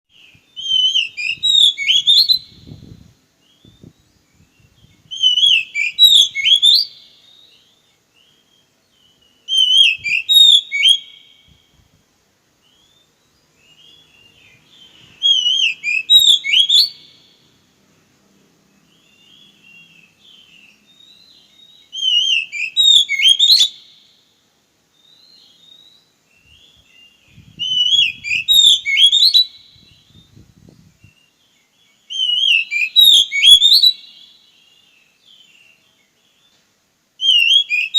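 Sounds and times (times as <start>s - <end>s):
bird singing whistled phrase: 0.2s - 2.9s, 3.5s - 7.6s, 8.3s - 11.6s, 13.7s - 17.2s, 19.2s - 23.9s, 25.0s - 31.4s, 32.0s - 34.3s, 37.2s - 37.9s.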